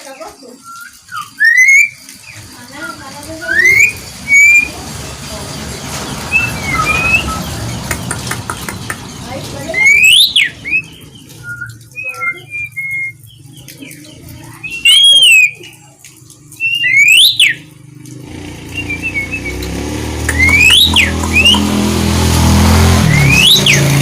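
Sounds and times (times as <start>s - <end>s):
starling whistled calls: 0.1s - 4.8s, 6.2s - 8.1s, 8.9s - 13.4s, 14.6s - 15.8s, 16.5s - 17.7s, 18.7s - 21.8s, 23.0s - 24.0s
vehicle engine hum: 2.2s - 24.0s.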